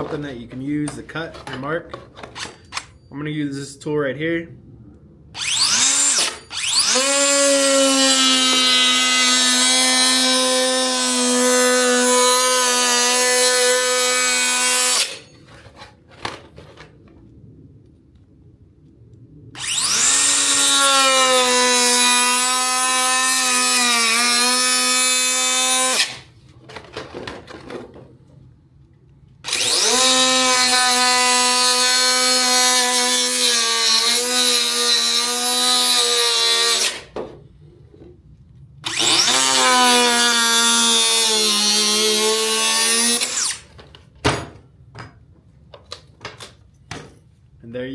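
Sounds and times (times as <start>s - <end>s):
power tool motor whine: 5.4s - 15.2s, 19.6s - 26.2s, 29.4s - 37.0s, 38.8s - 43.6s.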